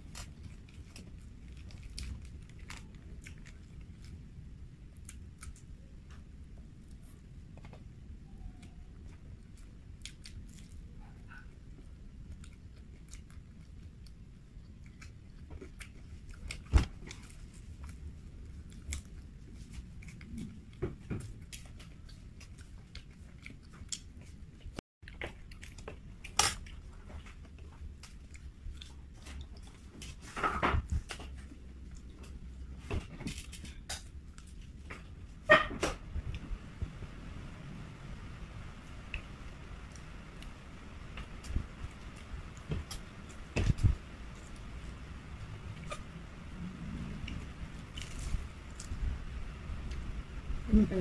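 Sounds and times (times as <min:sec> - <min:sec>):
person chewing crispy food: 0:00.0 - 0:30.3, 0:47.1 - 0:49.2.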